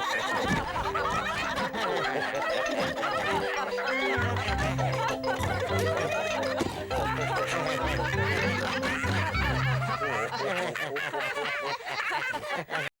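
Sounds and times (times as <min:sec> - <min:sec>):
cartoon characters laughing: 0:00.0 - 0:12.9
light background music: 0:00.8 - 0:10.4.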